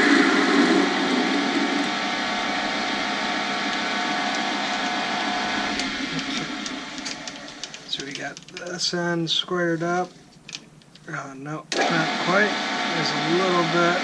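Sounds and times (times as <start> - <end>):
lathe motor whine: 0.0 - 8.0, 11.7 - 14.0.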